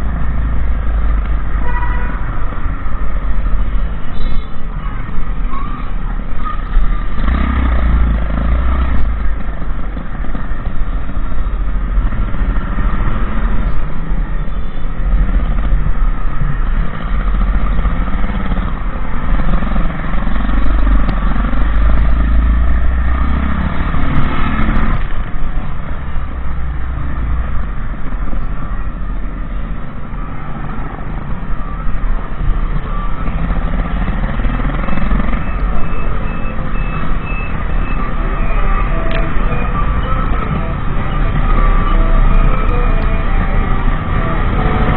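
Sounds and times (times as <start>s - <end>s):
motorcycle engine revving: 6.2s - 14.3s, 15.0s - 28.4s, 30.6s - 44.9s.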